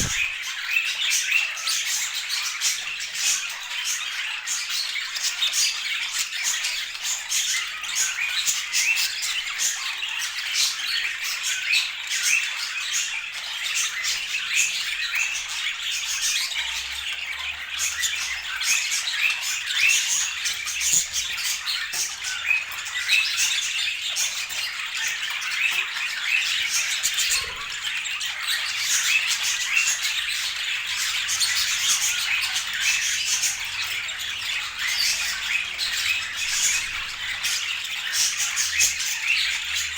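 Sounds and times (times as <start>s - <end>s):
budgerigars chattering: 0.0s - 0.3s, 26.5s - 39.9s.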